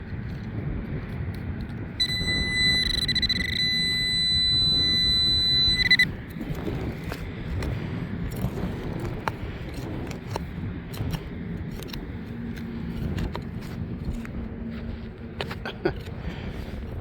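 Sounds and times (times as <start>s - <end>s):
wind rumbling on microphone: 0.0s - 17.0s
pulsing electronic tone: 2.0s - 6.2s.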